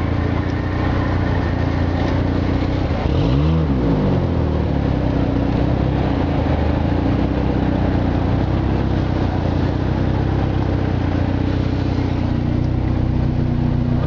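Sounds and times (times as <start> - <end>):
car engines running in traffic: 0.0 - 14.0.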